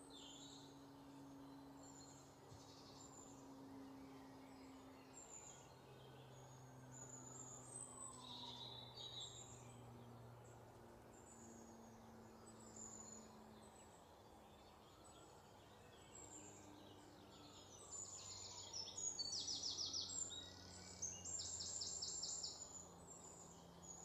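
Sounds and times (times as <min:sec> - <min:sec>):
faint songbird trills: 0:00.0 - 0:24.0.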